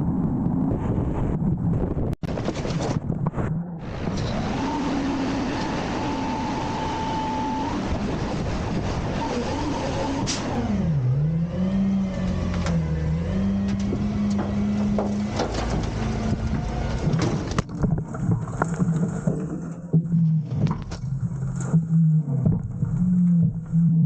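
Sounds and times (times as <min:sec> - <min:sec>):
garbage truck engine running: 0:03.8 - 0:17.6.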